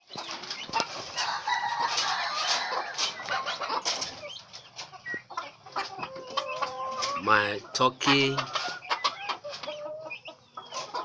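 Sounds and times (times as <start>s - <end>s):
hen clucking: 0.0s - 11.0s
turkey poults peeping: 0.0s - 11.0s.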